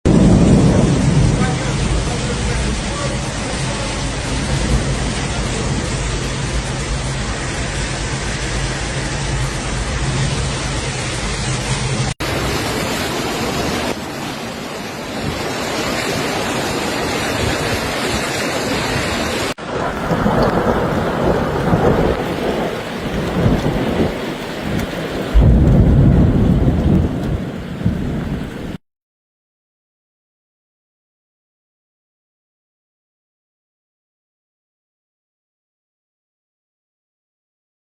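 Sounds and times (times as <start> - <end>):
heavy rain: 0.1 - 28.8
rushing water: 0.1 - 28.8
low rumble: 25.0 - 28.7.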